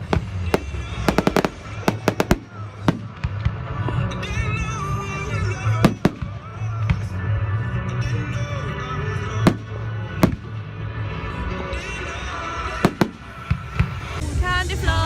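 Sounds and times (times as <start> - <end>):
fireworks bangs: 0.0 - 4.4, 5.6 - 7.2, 9.4 - 10.7, 12.8 - 14.2
music playing: 0.0 - 15.0.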